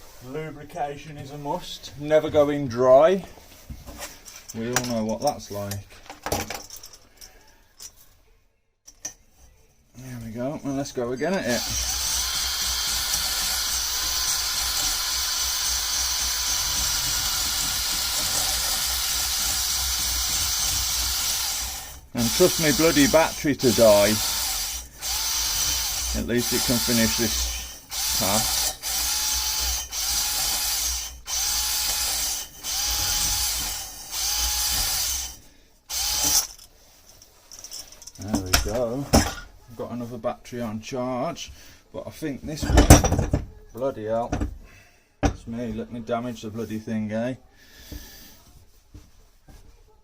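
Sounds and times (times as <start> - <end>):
drill honing abrasive hiss: 11.5 - 36.6.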